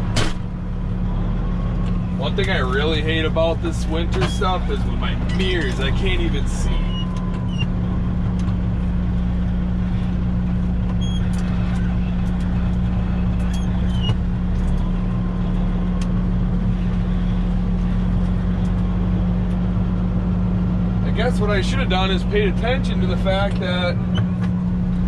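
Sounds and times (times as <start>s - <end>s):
diesel engine hum: 0.0s - 25.0s
faint squeaks and clicks: 6.8s - 7.8s, 10.8s - 15.0s.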